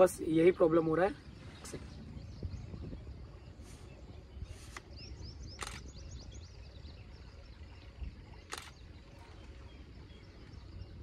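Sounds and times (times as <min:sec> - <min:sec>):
low rumbling background: 0:00.0 - 0:11.0
short high bird chirps: 0:04.5 - 0:06.4
sharp clicks: 0:05.5 - 0:05.9, 0:08.5 - 0:08.8.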